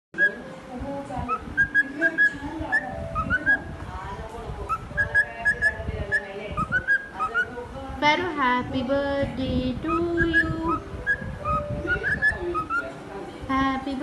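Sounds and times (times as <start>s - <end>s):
cockatiel whistling: 0.2s - 0.5s, 1.3s - 3.8s, 4.7s - 7.6s, 9.9s - 12.9s.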